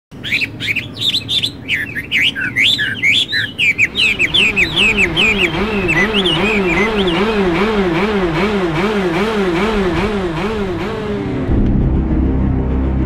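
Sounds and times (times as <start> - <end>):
songbirds chirping: 0.1 - 8.8.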